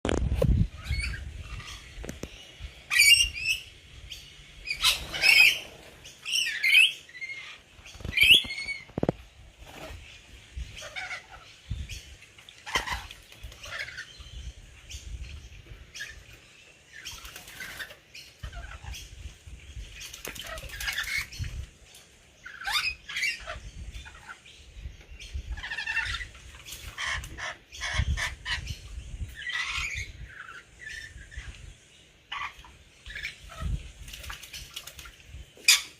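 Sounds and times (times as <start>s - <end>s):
shrill screeching bird calls: 4.6s - 8.9s
birds splashing in water: 34.0s - 35.9s.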